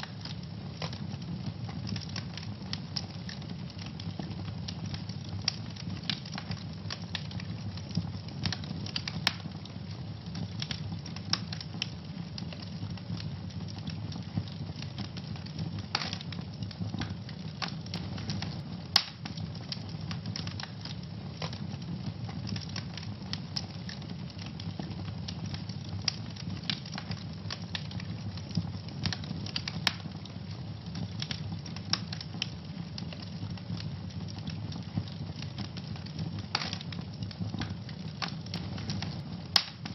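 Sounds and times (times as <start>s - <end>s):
low roar of flames: 0.0s - 39.9s
wood fire crackling and popping: 0.0s - 39.9s
sharp snap of fire: 15.9s - 16.3s, 17.0s - 19.4s, 36.5s - 36.9s, 37.6s - 39.9s.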